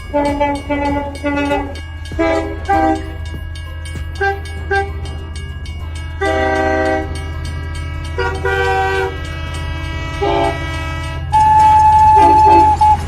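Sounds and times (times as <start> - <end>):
electronic horn toots: 0.1 - 3.2, 6.2 - 13.0.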